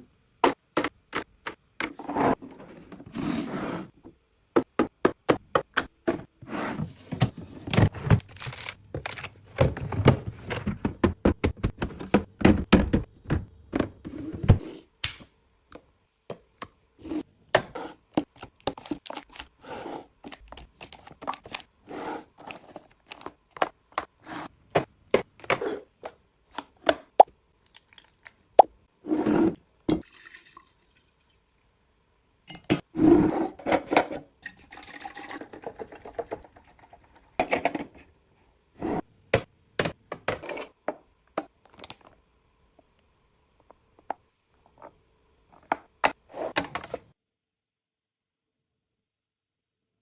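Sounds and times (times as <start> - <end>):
packaging scraping and rustling: 8.0 - 9.5.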